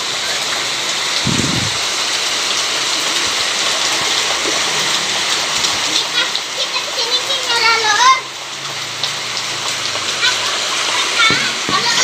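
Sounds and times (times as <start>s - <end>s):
heavy rain splashing: 0.0s - 12.0s
low thud: 1.2s - 1.8s.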